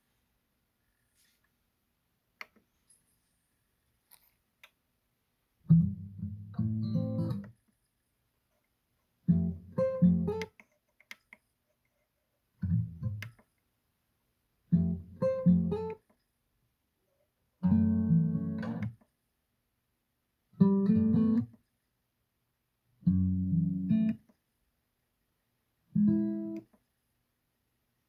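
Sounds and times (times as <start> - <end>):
acoustic guitar music: 5.7 - 7.5, 9.3 - 10.5, 14.7 - 16.0, 17.6 - 18.9, 20.6 - 21.6, 26.0 - 26.6.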